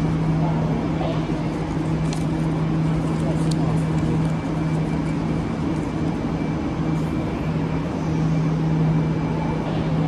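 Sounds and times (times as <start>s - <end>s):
train mechanical hum: 0.0s - 10.0s.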